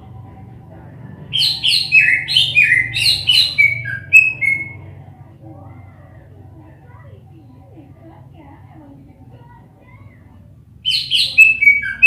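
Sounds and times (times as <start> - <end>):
bird singing whistled notes: 1.4 - 4.8, 10.8 - 12.0.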